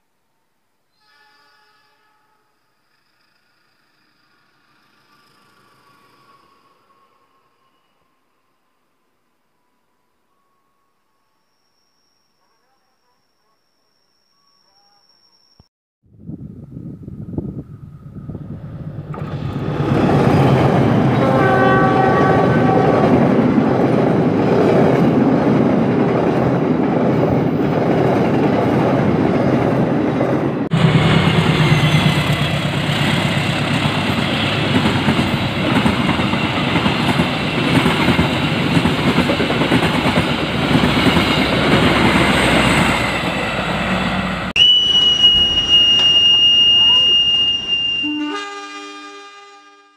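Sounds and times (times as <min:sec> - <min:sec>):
locomotive horn: 0:01.0 - 0:02.6, 0:21.0 - 0:23.3, 0:46.8 - 0:49.9
passing train rumble: 0:16.1 - 0:49.6
steady high-pitched tone: 0:44.6 - 0:48.4.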